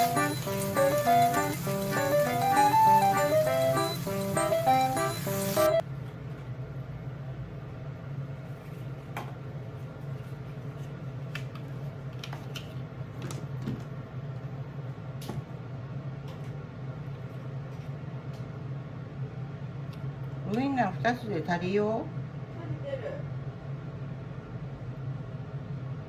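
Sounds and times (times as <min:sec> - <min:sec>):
low machine hum: 0:00.0 - 0:08.4.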